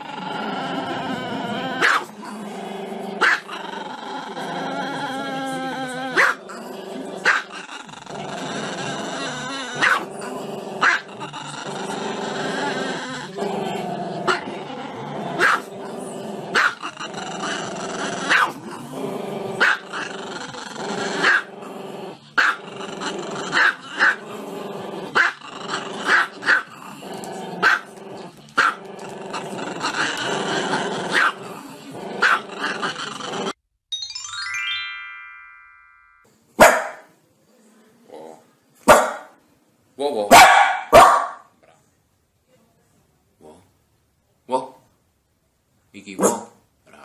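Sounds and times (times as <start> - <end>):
rising electronic jingle: 33.9 - 36.2
music: 33.9 - 36.3.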